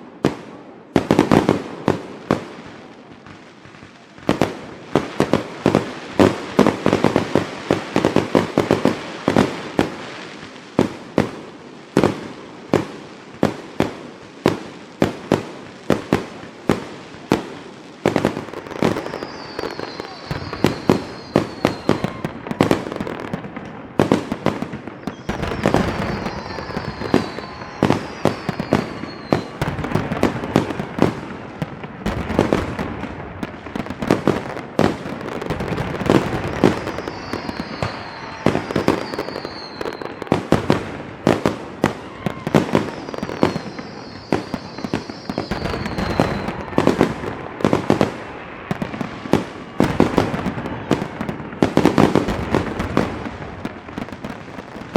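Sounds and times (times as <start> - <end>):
fireworks bangs and crackles: 0.0 - 54.9
falling firework whistles: 18.1 - 32.9, 33.7 - 54.9.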